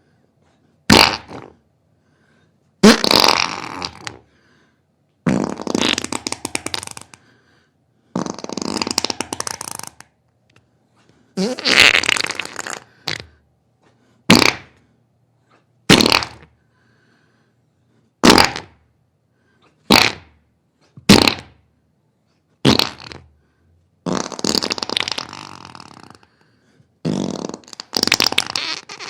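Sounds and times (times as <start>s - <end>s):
fart noises: 0.9s - 1.6s, 2.8s - 4.3s, 5.2s - 7.2s, 8.1s - 10.2s, 11.4s - 13.4s, 14.3s - 14.9s, 15.9s - 16.6s, 18.2s - 18.9s, 19.8s - 21.6s, 22.6s - 23.3s, 24.0s - 26.4s, 27.0s - 29.0s.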